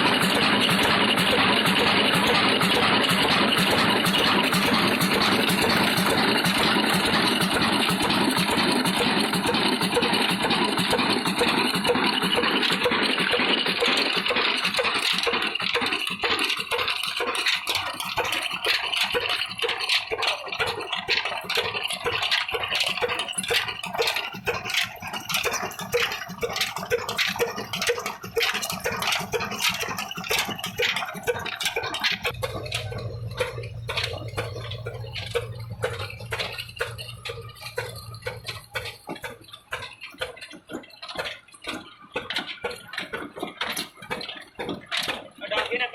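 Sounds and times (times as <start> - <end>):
diesel engine knocking rhythmically: 0.0 - 45.9
low steady hum: 32.3 - 39.2.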